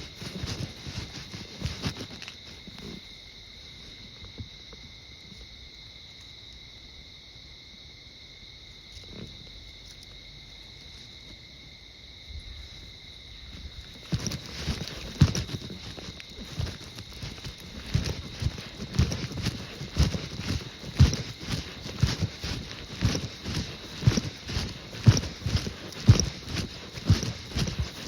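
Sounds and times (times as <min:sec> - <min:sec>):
footsteps on path: 0:00.0 - 0:03.1, 0:13.5 - 0:28.0
insects chirping: 0:00.0 - 0:28.0.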